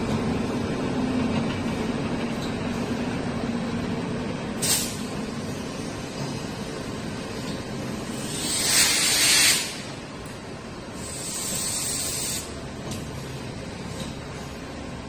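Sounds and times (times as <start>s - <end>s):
air brakes hissing: 4.6s - 5.2s, 8.1s - 9.9s, 11.0s - 12.5s.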